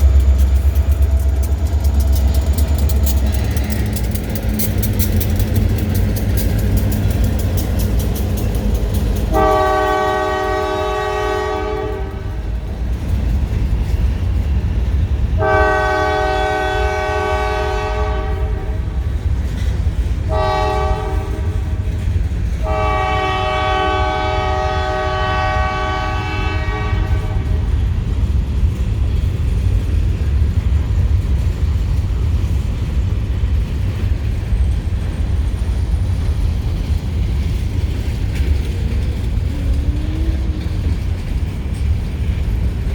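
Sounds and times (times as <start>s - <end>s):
low rumble of train rolling: 0.0s - 42.9s
locomotive horn blasts: 9.3s - 12.4s, 15.4s - 18.9s, 20.3s - 21.6s, 22.6s - 27.7s.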